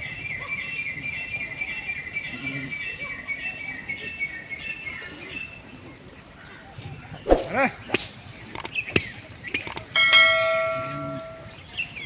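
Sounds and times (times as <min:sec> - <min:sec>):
small bird chirping: 0:08.6 - 0:09.0, 0:09.6 - 0:11.6.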